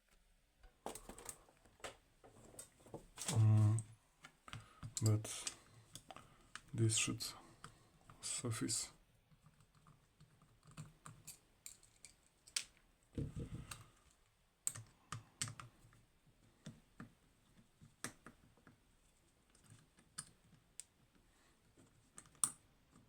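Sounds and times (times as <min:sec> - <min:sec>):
small objects clicking on a desk: 0:09.3 - 0:12.8.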